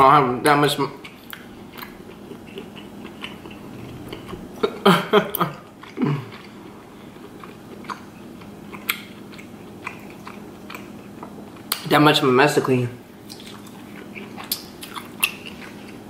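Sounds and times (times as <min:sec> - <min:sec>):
close chewing: 0:01.0 - 0:04.6, 0:05.3 - 0:11.8, 0:13.2 - 0:16.0
short throat hums: 0:03.4 - 0:06.5
wet mouth clicks: 0:13.3 - 0:15.8.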